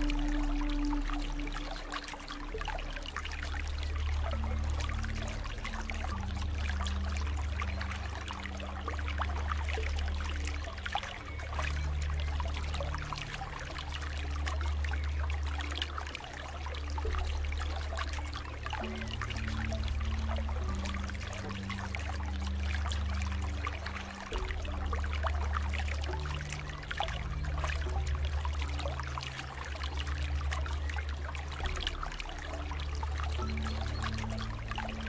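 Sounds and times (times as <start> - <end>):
low held tones: 0.0 - 35.0
water trickling and splashing: 0.0 - 35.0.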